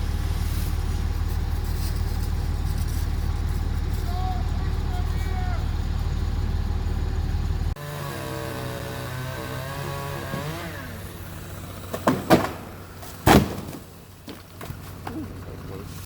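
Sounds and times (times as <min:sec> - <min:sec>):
motor running: 0:00.0 - 0:12.2.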